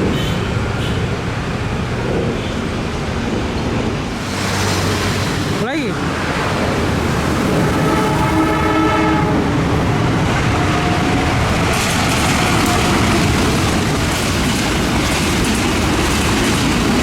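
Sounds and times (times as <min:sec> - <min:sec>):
train wheels rumbling on rail: 0:00.0 - 0:17.0
locomotive horn: 0:07.4 - 0:09.8.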